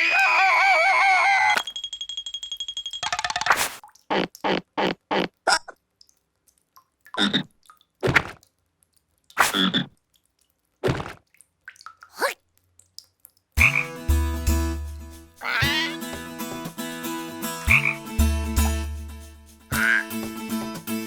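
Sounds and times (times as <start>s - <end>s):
croaky cartoon voice calls: 0.0s - 1.6s, 12.1s - 12.4s, 15.4s - 16.0s, 19.7s - 20.2s
music with deep bass: 13.6s - 21.0s.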